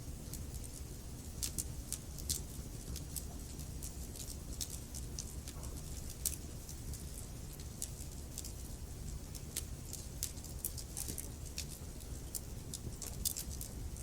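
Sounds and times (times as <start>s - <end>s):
logs crackling and popping: 1.4s - 14.0s.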